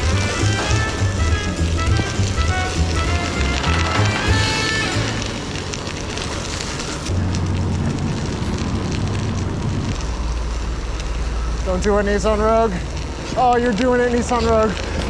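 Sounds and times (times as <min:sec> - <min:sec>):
road and traffic noise: 0:00.0 - 0:15.0
wind rumbling on microphone: 0:05.2 - 0:15.0.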